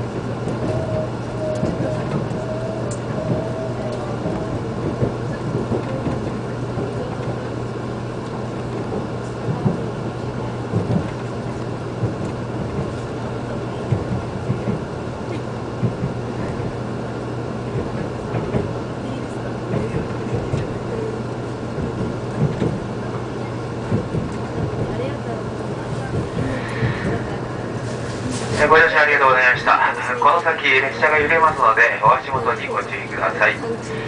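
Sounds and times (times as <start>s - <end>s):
train cabin rumble and hum: 0.0s - 34.0s
wavering whine: 26.3s - 30.2s.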